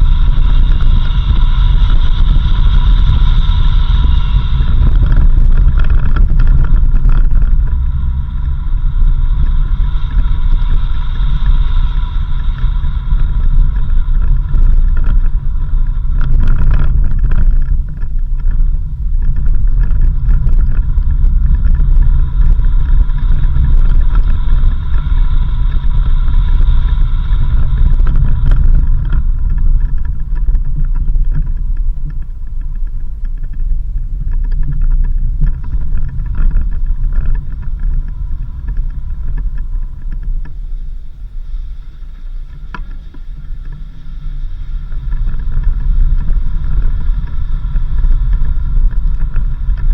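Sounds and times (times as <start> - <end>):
thin high steady tone: 0.0 - 33.6
car engine and road noise: 0.0 - 49.9.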